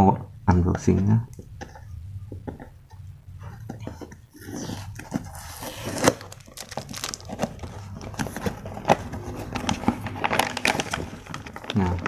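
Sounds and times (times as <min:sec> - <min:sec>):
packaging crinkling and tearing: 0:04.4 - 0:12.0
wrapping clicks: 0:04.9 - 0:12.0.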